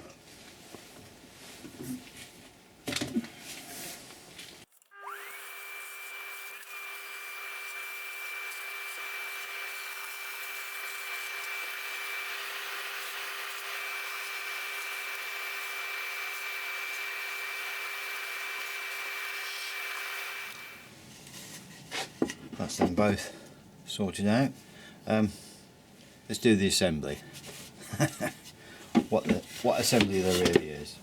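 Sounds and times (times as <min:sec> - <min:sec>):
electric motor whining: 0:04.8 - 0:20.9.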